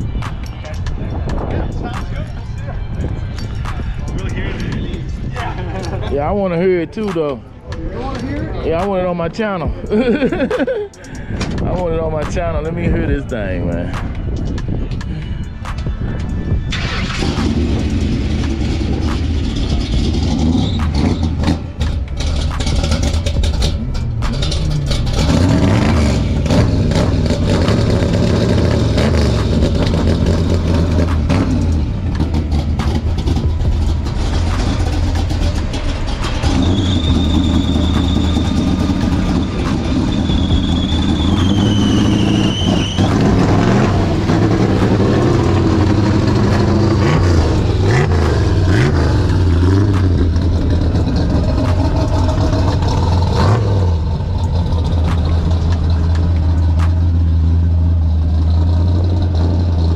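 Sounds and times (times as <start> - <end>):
car engine revving rough: 16.5 - 59.9
high whistle: 36.4 - 43.6.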